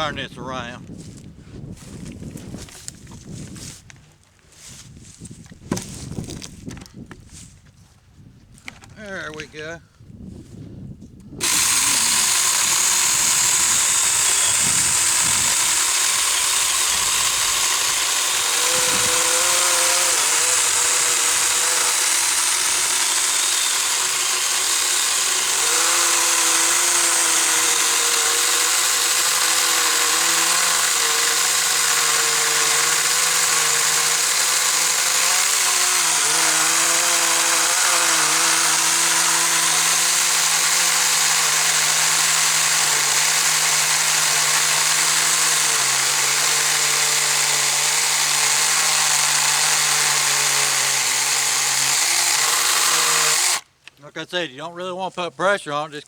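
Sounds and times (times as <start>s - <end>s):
electric chainsaw sawing wood: 11.4s - 53.8s.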